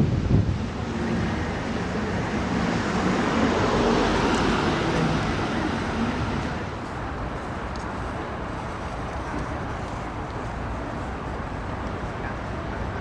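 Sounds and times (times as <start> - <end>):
passing vehicle engine: 0.0 - 6.9.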